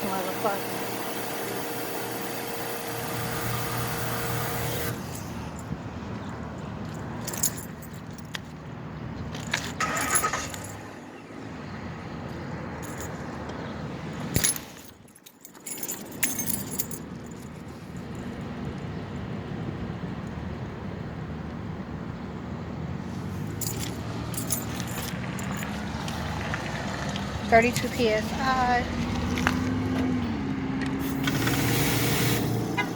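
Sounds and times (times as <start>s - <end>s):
metallic jingles: 6.8s - 8.6s, 9.3s - 10.9s, 12.8s - 13.2s, 14.1s - 18.3s, 23.3s - 26.1s.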